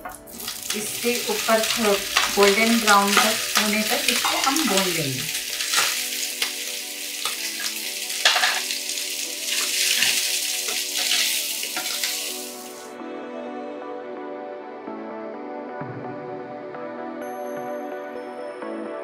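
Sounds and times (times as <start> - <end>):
food sizzling in a pan: 0.0 - 12.9
wooden spatula scraping a pan: 9.5 - 12.2.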